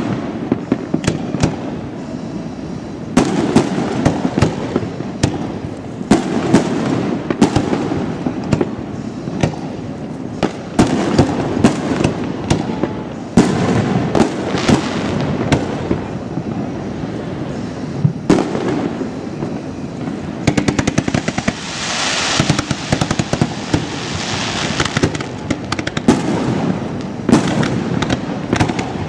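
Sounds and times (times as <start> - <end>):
continuous rumble: 0.0 - 29.0
firework shells bursting: 17.5 - 29.0.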